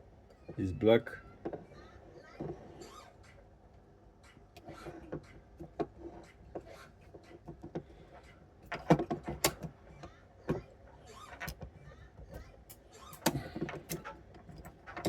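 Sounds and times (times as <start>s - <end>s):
small clicks and knocks from handling parts: 8.6s - 10.7s, 11.3s - 15.0s.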